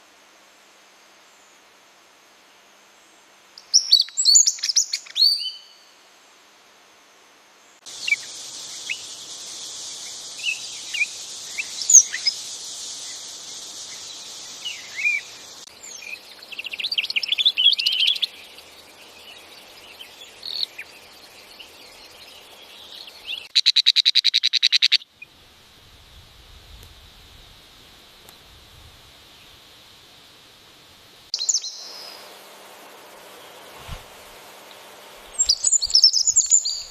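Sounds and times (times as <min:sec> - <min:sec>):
steady high-pitched hiss: 0:00.0 - 0:36.9
birds chirping: 0:07.9 - 0:25.0, 0:31.4 - 0:32.4, 0:33.2 - 0:36.9
bird trilling: 0:10.0 - 0:18.6, 0:35.4 - 0:36.9.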